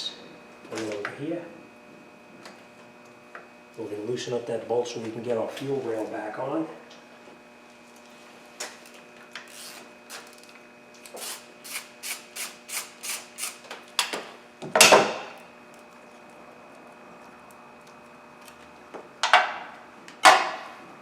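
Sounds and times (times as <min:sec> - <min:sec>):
ratchet wrench rasping: 0:11.2 - 0:13.6.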